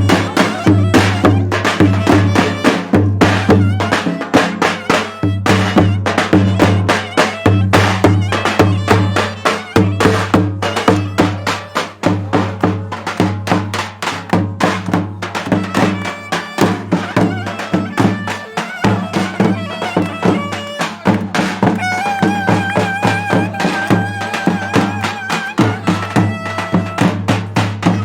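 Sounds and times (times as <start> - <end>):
fast drum beat: 0.0 - 28.0
folk dance music: 0.0 - 28.0
wavering held melody: 15.3 - 27.1.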